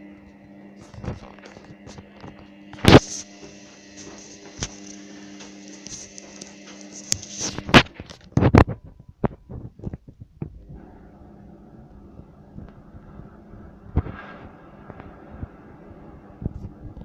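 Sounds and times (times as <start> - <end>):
washing machine hum: 0.0 - 8.0, 10.5 - 17.0
hiss: 2.9 - 7.6.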